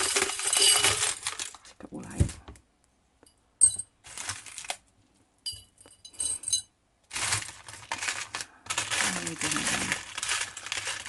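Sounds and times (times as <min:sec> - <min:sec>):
glass beads clinking: 0:00.0 - 0:01.4, 0:03.6 - 0:03.9, 0:05.4 - 0:06.7
rustling of craft materials: 0:00.0 - 0:02.7, 0:03.6 - 0:11.0.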